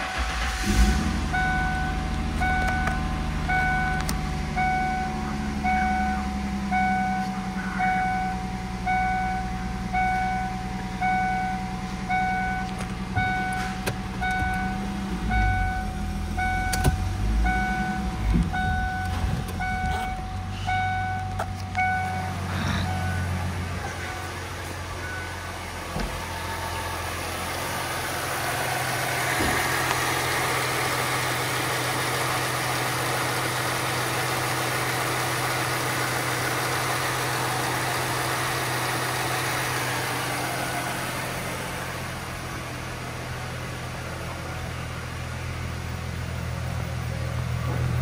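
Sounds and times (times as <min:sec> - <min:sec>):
car engine idling: 0:00.0 - 0:48.0
dashboard warning chime beeping: 0:00.1 - 0:27.0
engine knocks: 0:12.2 - 0:26.9, 0:28.4 - 0:30.6.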